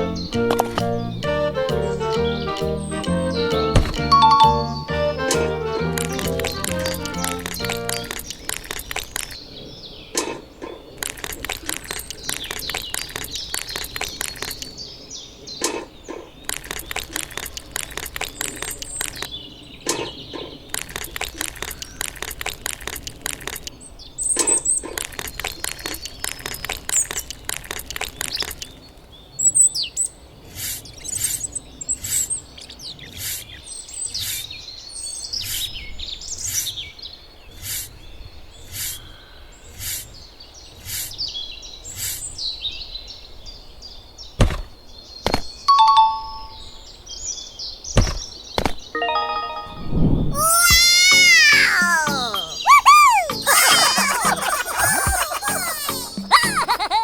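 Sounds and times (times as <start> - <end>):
small birds chirping: 6.4 - 22.3.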